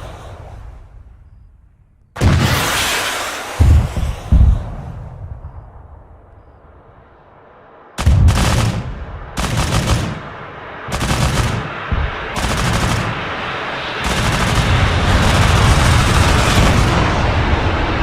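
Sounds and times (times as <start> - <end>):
autocannon bursts: 8.0 - 11.7, 12.3 - 13.3, 14.0 - 17.1.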